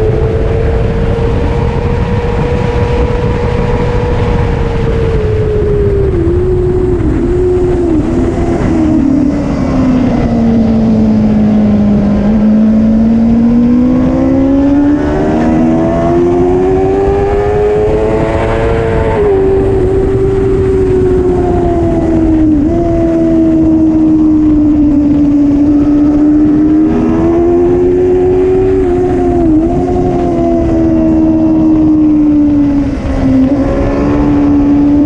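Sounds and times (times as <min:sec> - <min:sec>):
motorcycle engine revving: 0:00.0 - 0:35.0
wind noise: 0:00.0 - 0:35.0.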